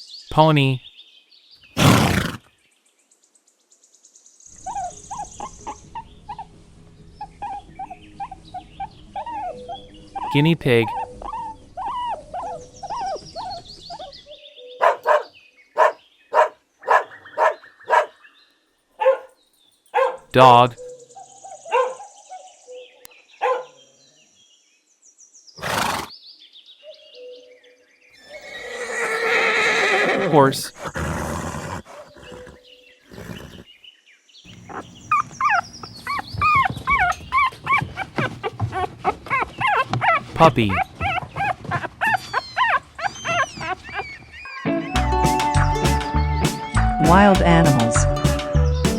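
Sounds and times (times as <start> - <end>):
guinea pig squeaking: 4.6 - 6.4, 34.5 - 45.0
dog barking: 4.6 - 6.5, 14.8 - 18.2, 19.0 - 20.3, 21.6 - 22.1, 23.4 - 23.8, 34.6 - 44.1
puppy whimpering and yipping: 4.6 - 6.5, 7.2 - 15.2, 34.5 - 44.9.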